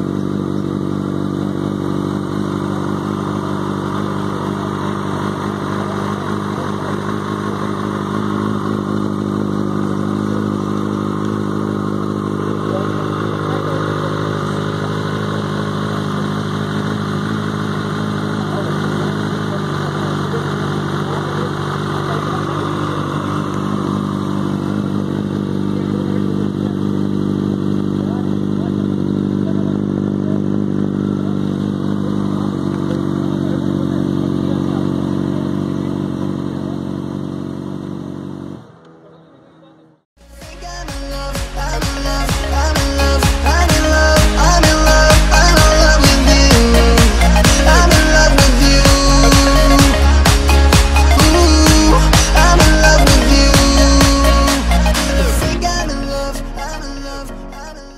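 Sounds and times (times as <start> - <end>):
motorcycle engine idling: 0.0 - 57.9.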